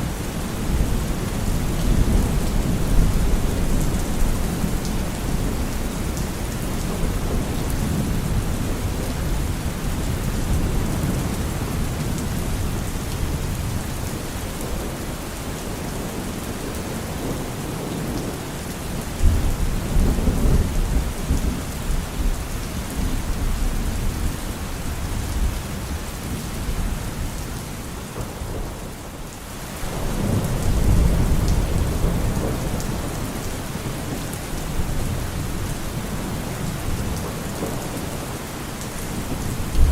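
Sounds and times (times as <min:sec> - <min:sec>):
heavy rain: 0:00.0 - 0:39.9
thunder rumbling: 0:29.8 - 0:38.3, 0:39.2 - 0:39.9.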